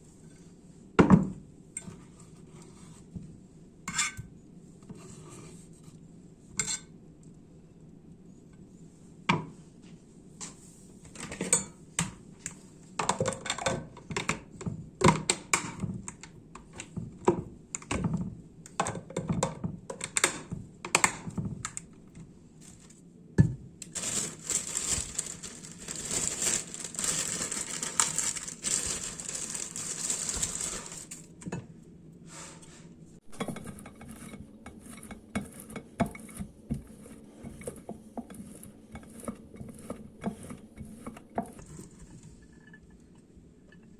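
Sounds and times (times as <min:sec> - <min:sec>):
dishes and utensils clinking: 0:33.3 - 0:41.6.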